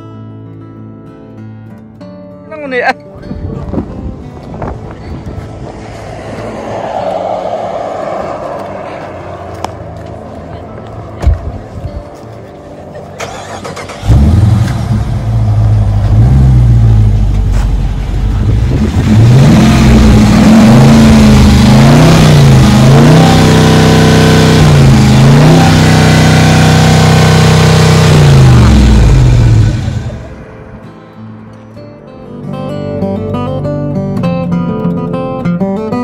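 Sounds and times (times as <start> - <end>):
car engine revving: 4.4 - 30.8.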